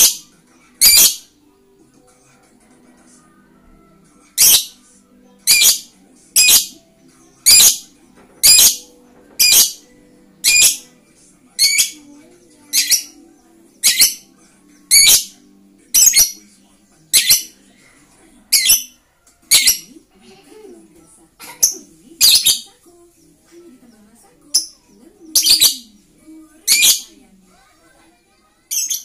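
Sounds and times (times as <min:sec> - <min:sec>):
lovebird squawking: 0:00.8 - 0:01.2, 0:04.4 - 0:04.7, 0:05.5 - 0:06.7, 0:07.4 - 0:07.8, 0:08.4 - 0:08.8, 0:09.4 - 0:09.8, 0:10.4 - 0:10.8, 0:11.6 - 0:12.0, 0:12.7 - 0:13.2, 0:13.8 - 0:14.2, 0:14.9 - 0:15.3, 0:18.5 - 0:19.9, 0:21.6 - 0:22.7, 0:24.5 - 0:26.0, 0:26.7 - 0:27.1.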